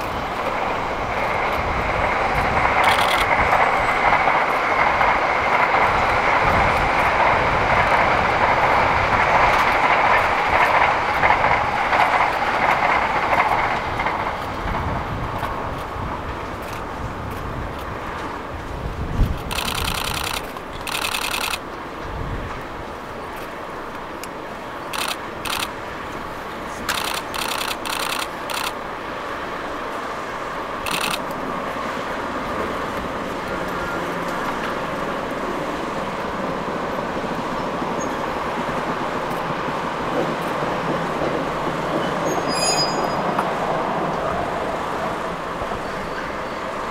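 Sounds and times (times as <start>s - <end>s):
train wheels rumbling on rails: 0.0s - 46.9s
faint high squeals: 42.0s - 43.4s.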